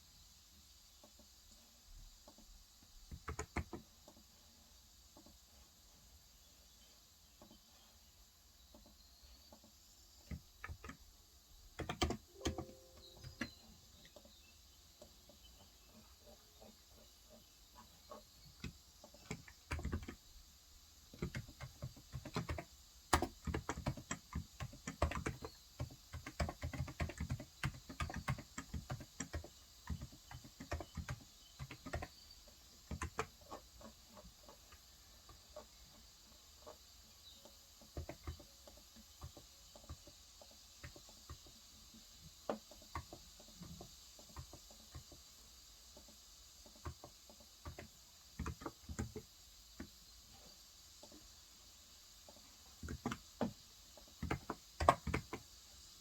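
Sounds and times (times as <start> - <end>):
keyboard typing: 3.1 - 3.8, 10.3 - 11.0, 11.8 - 14.2, 18.5 - 20.2, 21.1 - 34.6, 37.8 - 40.1, 54.2 - 55.5.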